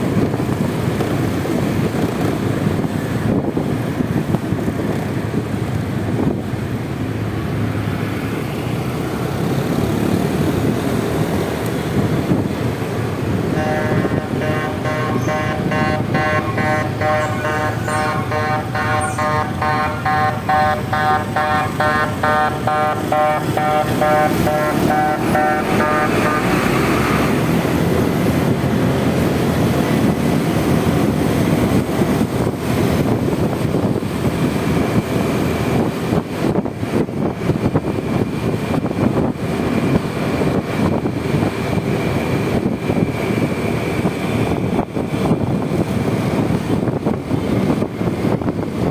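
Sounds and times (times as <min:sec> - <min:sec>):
wind noise: 0:00.0 - 0:48.9
scooter engine: 0:03.7 - 0:44.6
beeping tone: 0:13.8 - 0:26.6.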